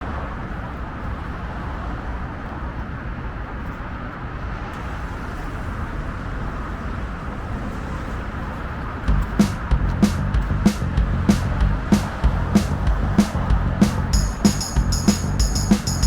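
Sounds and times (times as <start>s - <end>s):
vehicle rumble on road: 4.7s - 16.0s
wind noise: 4.7s - 16.0s.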